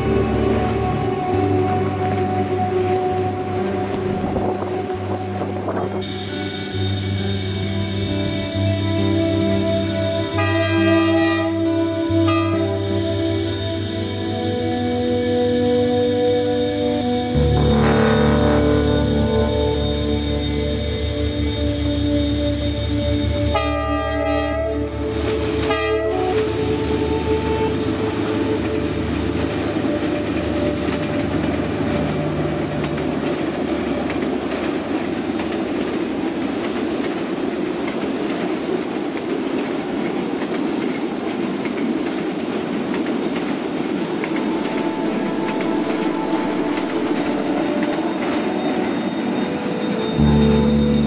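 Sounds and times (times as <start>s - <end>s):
train wheels rumbling on rails: 0.0s - 51.0s
train horn tone: 7.7s - 34.2s, 44.1s - 51.0s
clicking over rail joints: 29.5s - 44.8s.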